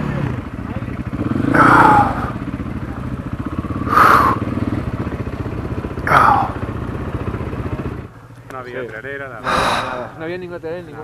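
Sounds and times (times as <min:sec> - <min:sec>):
motorcycle engine running: 0:00.0 - 0:10.8
loud falling pitch sounds: 0:01.5 - 0:02.4.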